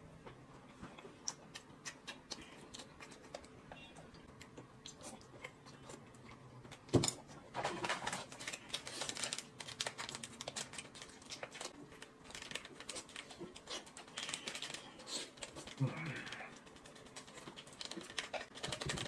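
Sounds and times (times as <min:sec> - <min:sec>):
plastic sachet crinkling: 0:07.6 - 0:19.0.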